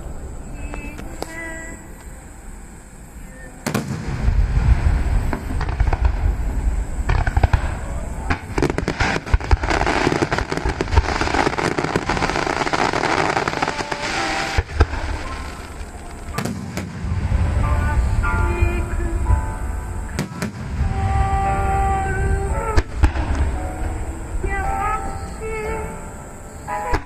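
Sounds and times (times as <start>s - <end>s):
fireworks crackling: 3.2s - 27.0s
fireworks booming: 3.6s - 26.0s.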